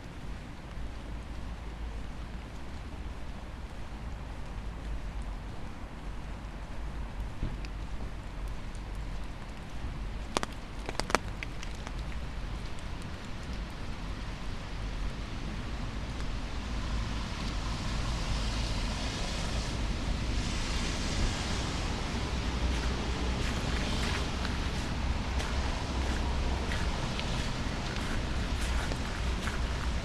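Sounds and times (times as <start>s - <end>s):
rain: 0.0s - 30.0s
traffic on wet road: 0.0s - 30.0s.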